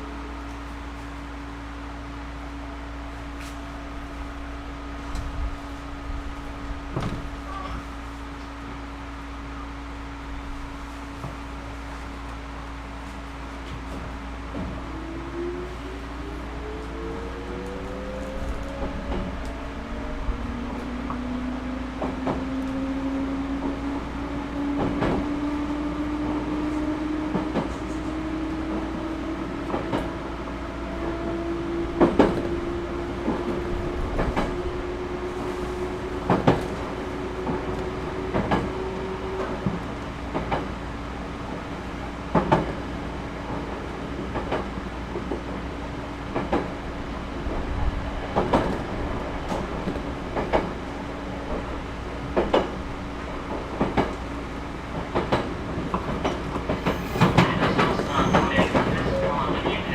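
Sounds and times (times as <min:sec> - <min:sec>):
steady train rumble: 0:00.0 - 0:59.9
electric train motor hum: 0:08.0 - 0:44.4
wheels clicking over rail joints: 0:48.3 - 0:59.0.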